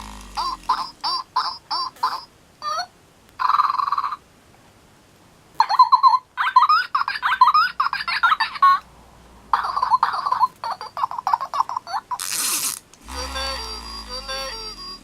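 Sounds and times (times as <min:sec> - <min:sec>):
electronic toy bird chirps: 0:00.4 - 0:04.2, 0:05.6 - 0:08.8, 0:13.1 - 0:15.0.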